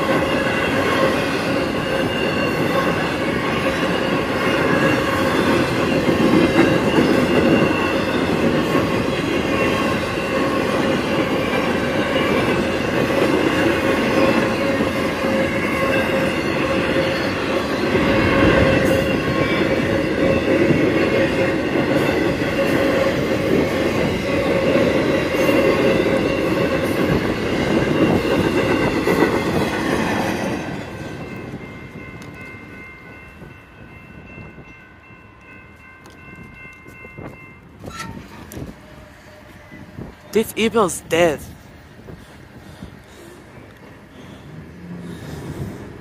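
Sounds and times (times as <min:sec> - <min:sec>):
train wheels rumbling on rail: 0:00.0 - 0:40.3, 0:41.4 - 0:46.0
crossing warning bell ringing: 0:00.0 - 0:41.5.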